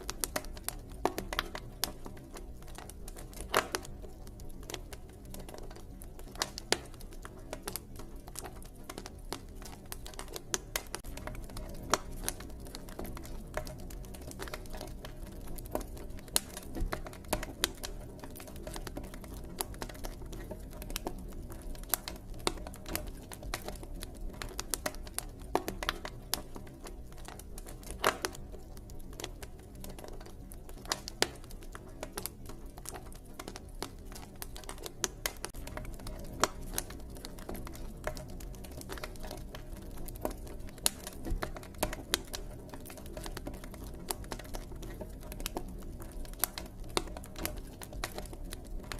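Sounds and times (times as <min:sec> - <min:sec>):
low fire rumble: 0:00.0 - 0:48.9
wood pops and snaps: 0:03.3 - 0:03.9, 0:27.8 - 0:28.4.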